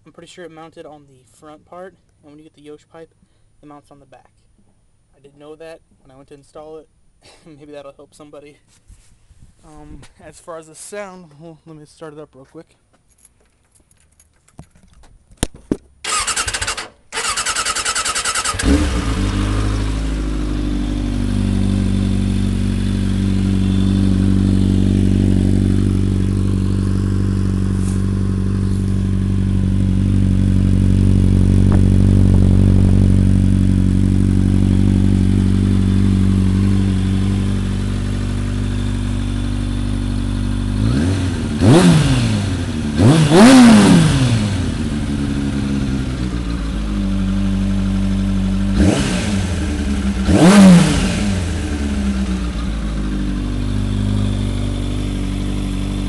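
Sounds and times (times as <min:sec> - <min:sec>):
motorcycle engine idling and revving: 0:16.0 - 0:56.0
electric starter cranking: 0:16.1 - 0:19.0.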